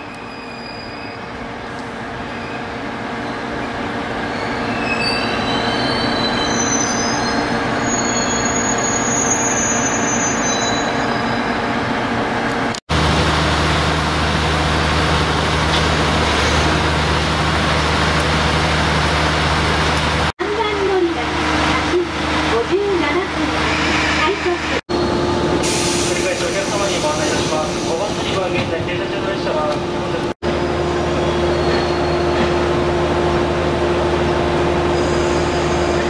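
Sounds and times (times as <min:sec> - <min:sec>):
train approaching with rumble: 0:00.0 - 0:36.0
train running drone: 0:11.5 - 0:36.0.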